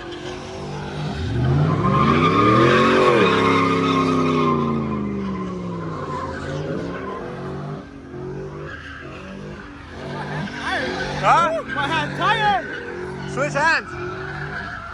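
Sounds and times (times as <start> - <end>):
truck engine revving: 0.0 - 14.9.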